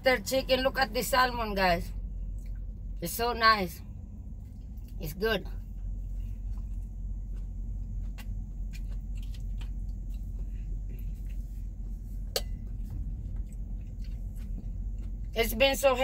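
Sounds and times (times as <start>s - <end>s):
low rumble in truck cab: 0.0s - 16.0s
person chewing food: 5.6s - 15.4s.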